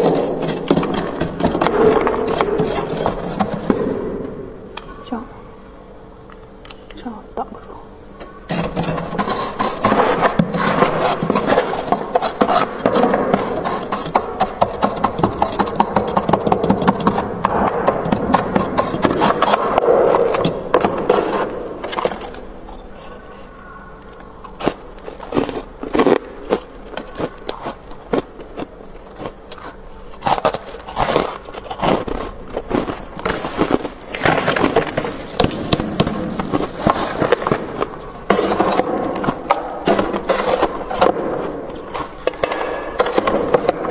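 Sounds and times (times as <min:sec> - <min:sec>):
frost scraping in freezer: 0:00.0 - 0:04.3, 0:08.2 - 0:23.6, 0:24.5 - 0:42.4, 0:43.0 - 0:43.9
ice crunches: 0:24.6 - 0:42.2.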